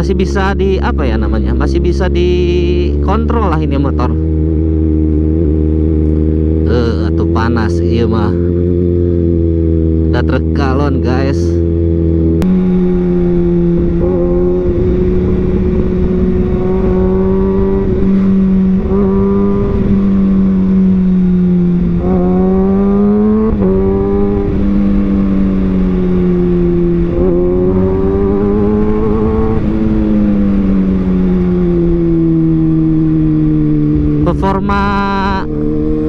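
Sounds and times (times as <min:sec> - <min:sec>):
motorcycle engine revving: 0:00.0 - 0:36.0
rush of wind noise: 0:12.4 - 0:36.0.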